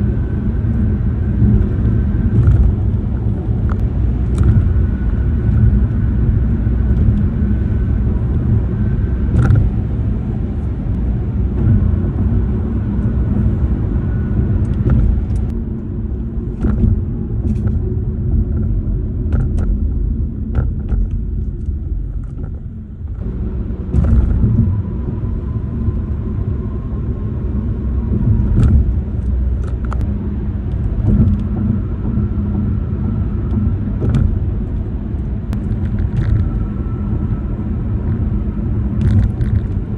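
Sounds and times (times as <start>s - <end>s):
car tyres rumbling on road: 0.0s - 39.9s
faint steady whine: 0.0s - 39.9s
car interior plastics rattling: 1.4s - 7.6s, 19.3s - 25.1s, 33.5s - 37.0s.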